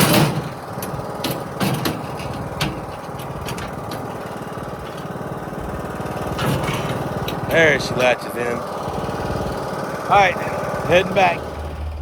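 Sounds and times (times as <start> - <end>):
sharp knocks and clatters: 0.0 - 5.2, 6.3 - 8.2
small engine idling: 0.0 - 12.0.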